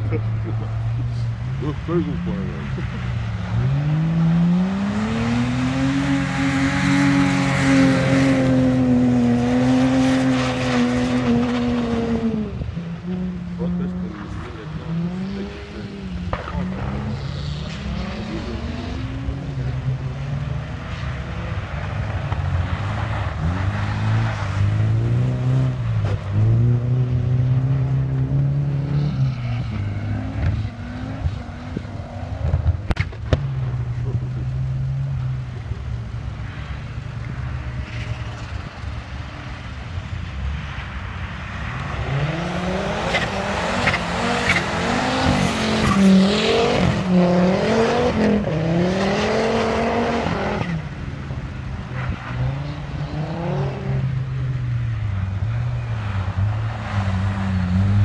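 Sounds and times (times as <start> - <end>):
rally car engines revving: 0.0 - 58.0
sharp crack: 32.4 - 33.6.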